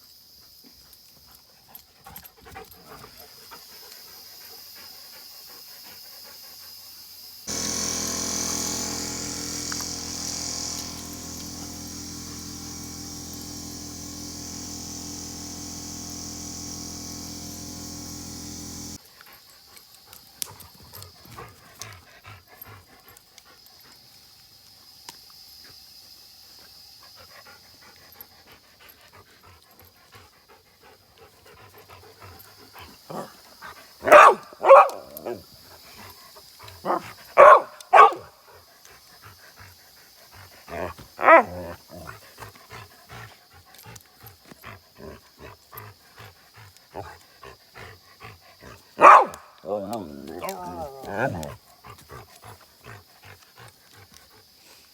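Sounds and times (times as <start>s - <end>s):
machine hum: 7.5s - 19.0s.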